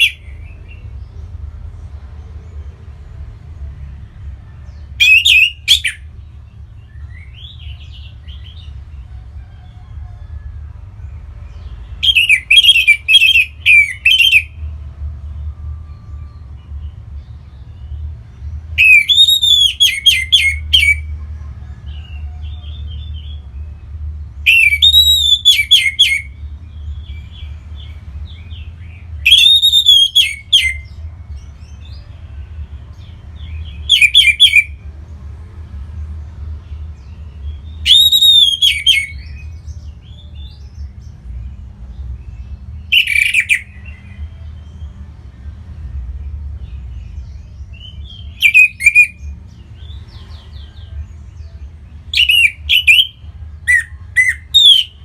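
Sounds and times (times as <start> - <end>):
thrush whistled song: 5.0 - 6.1, 12.0 - 14.6, 18.8 - 21.1, 24.4 - 26.4, 28.9 - 30.9, 33.8 - 34.8, 37.7 - 39.5, 42.9 - 44.2, 47.8 - 49.2, 52.1 - 55.0.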